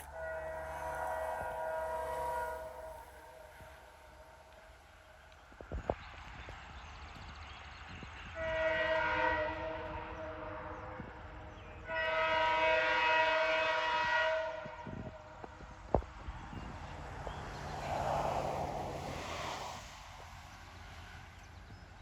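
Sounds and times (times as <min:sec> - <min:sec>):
locomotive air horn blasts: 0:00.0 - 0:04.6, 0:08.4 - 0:11.1, 0:11.8 - 0:15.2
train rumbling: 0:00.0 - 0:22.0.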